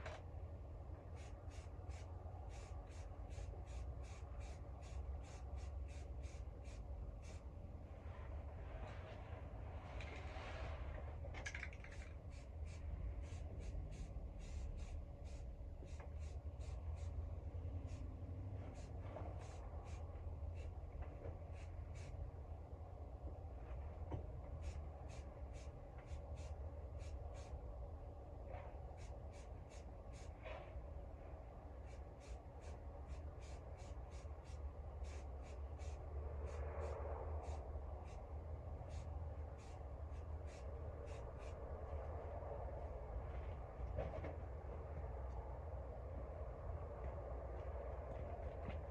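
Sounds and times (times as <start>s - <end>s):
low steady hum: 0.0s - 48.9s
spray paint can hissing: 1.1s - 7.5s, 11.4s - 20.8s, 21.4s - 22.2s, 24.6s - 27.6s, 28.9s - 30.4s, 31.8s - 41.6s.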